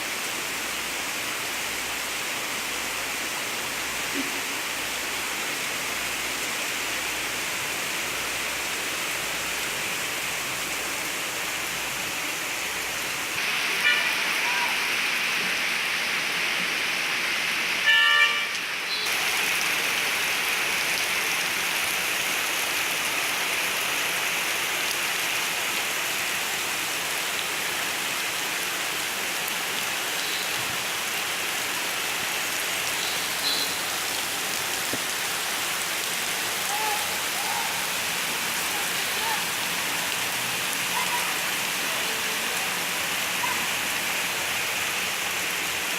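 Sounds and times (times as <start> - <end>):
steady rain: 0.0 - 45.9.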